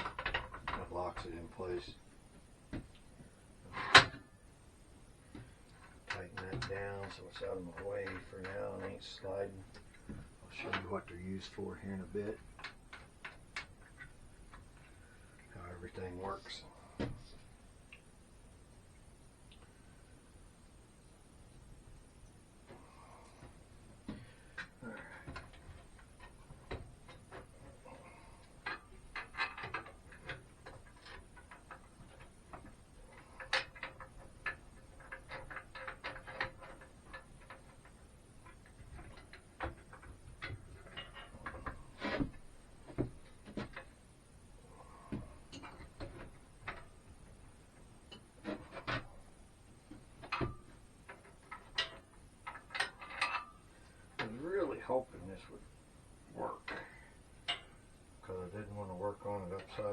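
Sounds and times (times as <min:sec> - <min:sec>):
metal hardware clinking: 0:50.2 - 0:54.4, 0:56.6 - 0:57.9.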